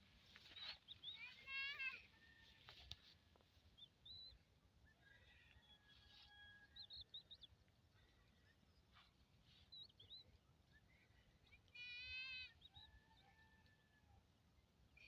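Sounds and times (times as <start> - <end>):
small bird chirps: 0.3 - 2.1, 3.7 - 13.2.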